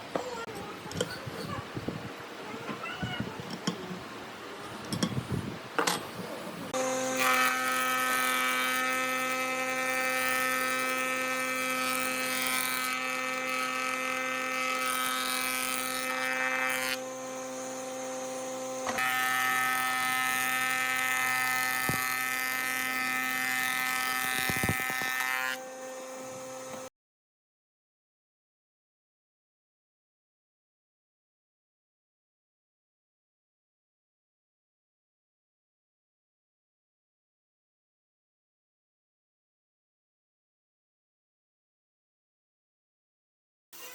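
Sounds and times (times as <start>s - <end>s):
electric motor whining: 6.8s - 26.9s.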